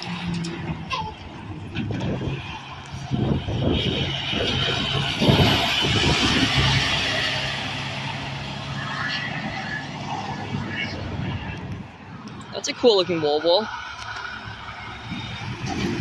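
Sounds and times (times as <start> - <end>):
heavy truck driving past: 0.0 - 11.7.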